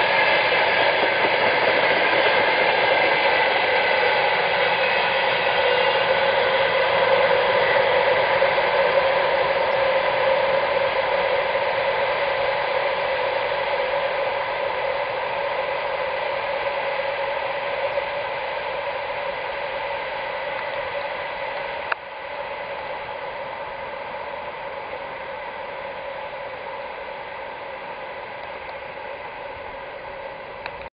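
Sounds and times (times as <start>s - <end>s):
train wheels clattering on rails: 0.0s - 14.4s.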